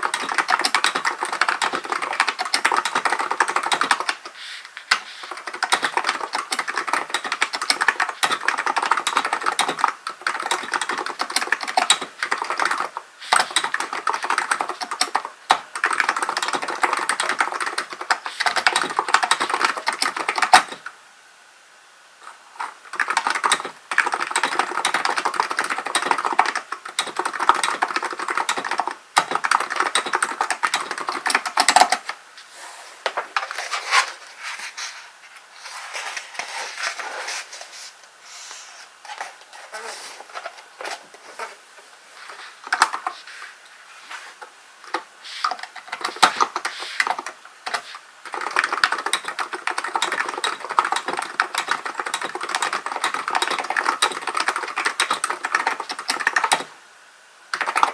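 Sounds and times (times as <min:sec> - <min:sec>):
keyboard typing: 0:00.0 - 0:20.9, 0:22.2 - 0:32.2, 0:42.2 - 0:43.2, 0:44.8 - 0:56.8, 0:57.5 - 0:57.9.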